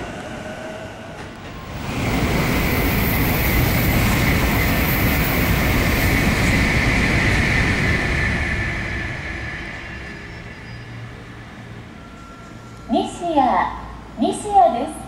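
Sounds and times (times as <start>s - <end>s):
train rumbling: 0.0s - 15.0s
high-pitched brake squeal: 8.2s - 13.0s.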